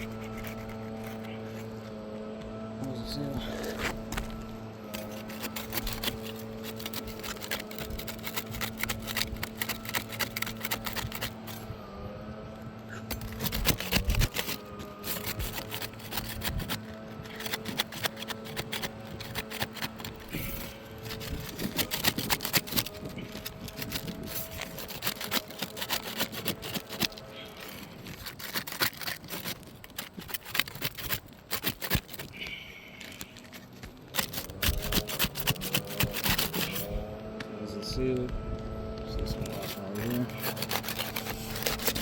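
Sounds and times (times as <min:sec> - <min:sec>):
steady low hum: 0:00.0 - 0:30.2
shingles crackling and scraping: 0:00.0 - 0:42.0.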